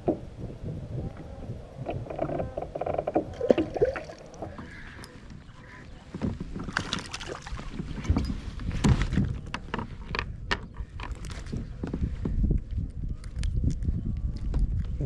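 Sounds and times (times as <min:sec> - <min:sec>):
wind rumble on microphone: 0:00.0 - 0:15.0
water splashing: 0:02.0 - 0:05.9, 0:06.5 - 0:08.0.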